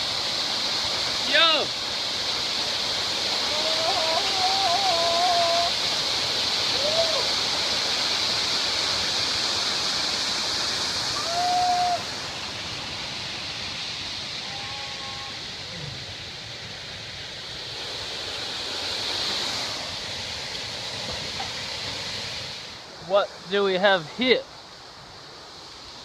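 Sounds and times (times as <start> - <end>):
waterfall rushing: 0.0 - 26.0
faint pitched calls: 14.4 - 16.0.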